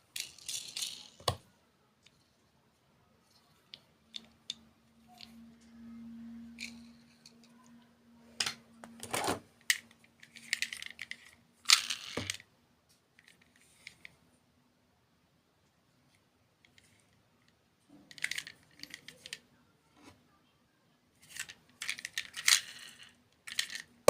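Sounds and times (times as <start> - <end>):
hard objects clicking and rattling: 17.9 - 19.4, 21.2 - 24.0.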